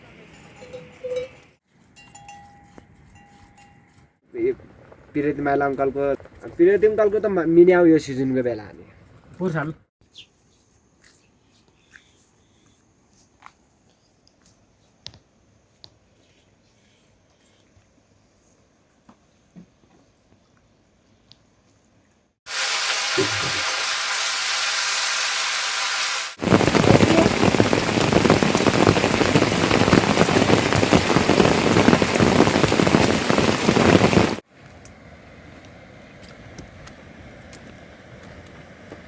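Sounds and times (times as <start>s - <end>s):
heavy rain falling: 22.5s - 34.4s.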